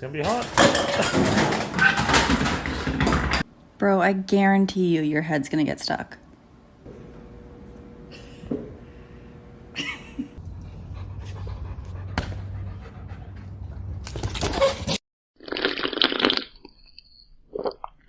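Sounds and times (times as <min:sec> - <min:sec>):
low hum: 0:06.8 - 0:14.1
dog panting: 0:10.6 - 0:13.9.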